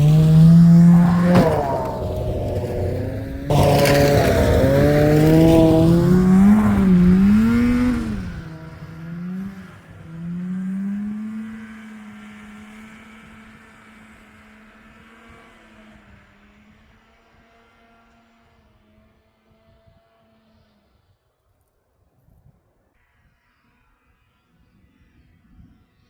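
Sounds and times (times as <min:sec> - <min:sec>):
snowmobile engine revving: 0:00.0 - 0:20.5.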